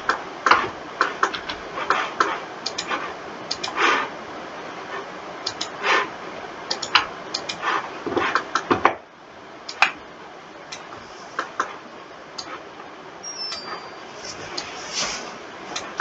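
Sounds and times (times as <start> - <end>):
mouse and keyboard clicking: 0.1 - 3.9, 5.5 - 5.8, 6.7 - 7.7.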